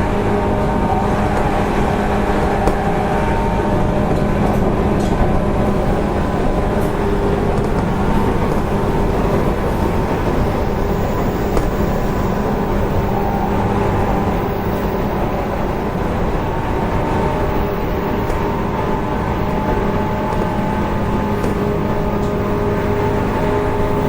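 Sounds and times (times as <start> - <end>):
electric train motor hum: 5.5 - 24.0
wheels rolling on rails: 5.5 - 24.0.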